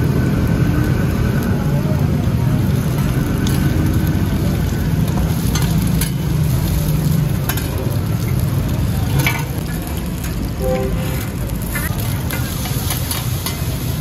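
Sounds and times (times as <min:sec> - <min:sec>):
omelettes sizzling in oil: 0:00.0 - 0:14.0
metal spatulas clacking on pan: 0:05.4 - 0:06.3, 0:07.4 - 0:08.5, 0:09.1 - 0:09.6, 0:11.3 - 0:13.8.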